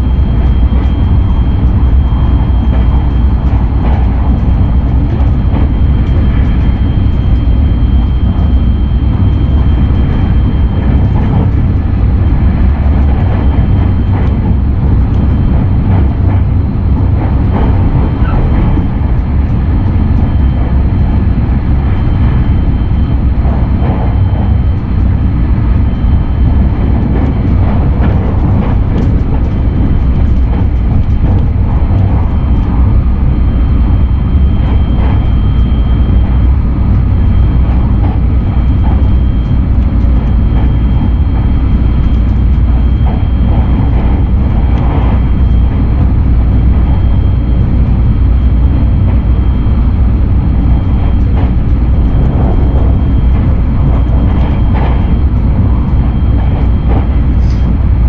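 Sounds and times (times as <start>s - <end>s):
train rumbling on rails: 0.0s - 58.0s.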